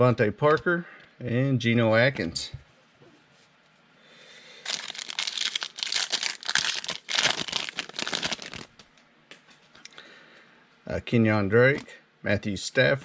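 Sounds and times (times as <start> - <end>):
foil wrapper crinkling and tearing: 4.6 - 8.8.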